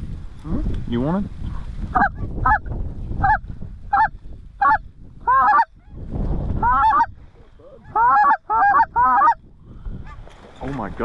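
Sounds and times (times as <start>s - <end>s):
geese honking: 3.2s - 5.7s, 6.6s - 7.1s, 7.8s - 9.4s.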